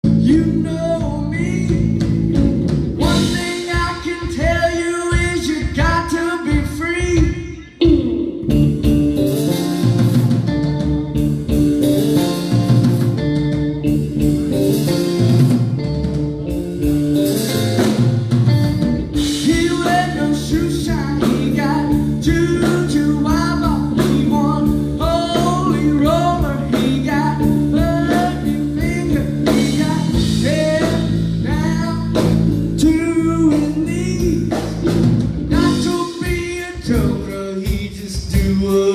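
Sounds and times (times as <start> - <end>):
man singing: 0.0 - 2.2, 3.0 - 8.4, 19.0 - 34.9, 35.5 - 38.9
drum kit: 0.0 - 38.9
electric guitar: 0.0 - 38.9.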